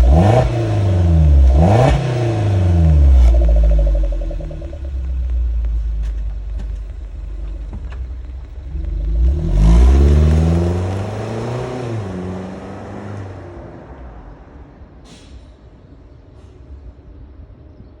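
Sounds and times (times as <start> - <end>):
engine revving: 0.0 - 5.3, 8.7 - 13.5
car exhaust note: 0.0 - 7.8.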